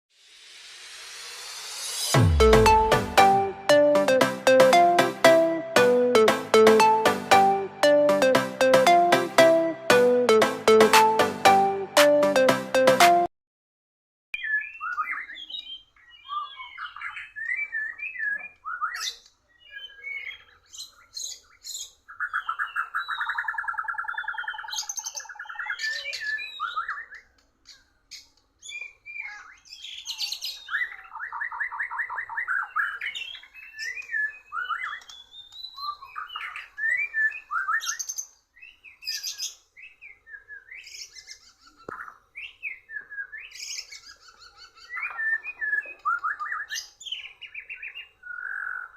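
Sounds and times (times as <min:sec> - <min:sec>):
bird whistled song: 0:14.4 - 0:19.1, 0:22.2 - 0:27.2, 0:28.7 - 0:48.9.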